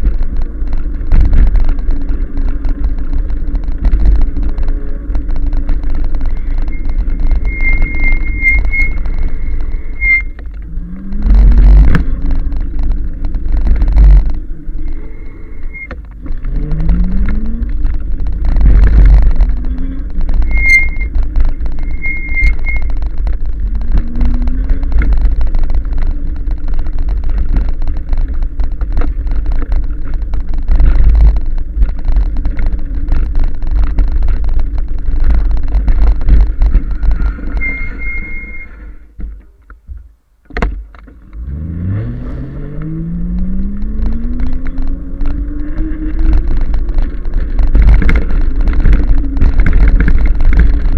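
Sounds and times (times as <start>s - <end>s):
wind rumble on microphone: 0.0s - 50.9s
thin high tone: 6.4s - 10.4s.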